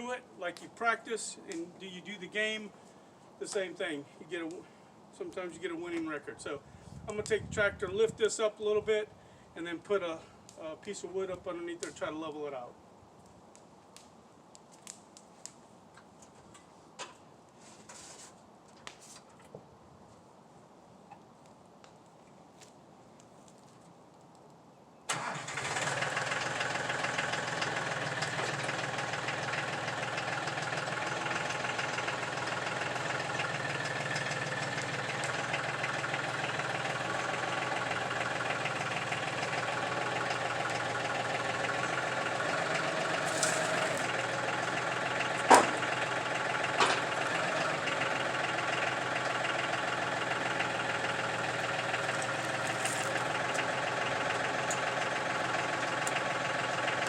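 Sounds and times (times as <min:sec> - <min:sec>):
tractor engine running: 0:25.1 - 0:57.0.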